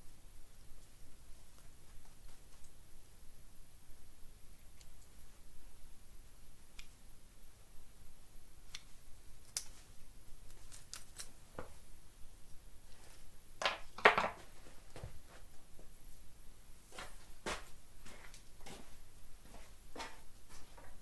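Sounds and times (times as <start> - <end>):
light clicks of handling: 6.7 - 7.0, 8.7 - 9.8.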